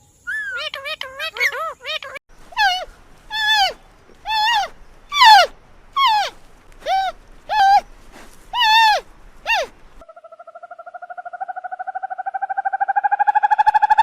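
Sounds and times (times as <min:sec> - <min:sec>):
animal calling: 0:00.3 - 0:10.4.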